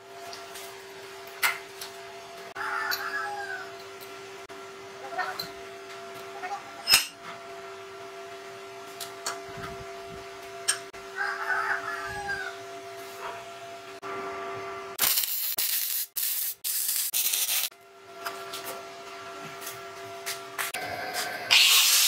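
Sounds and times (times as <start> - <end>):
rooster crowing: 2.6 - 3.8, 11.0 - 12.8
arc welding crackling: 15.0 - 17.7.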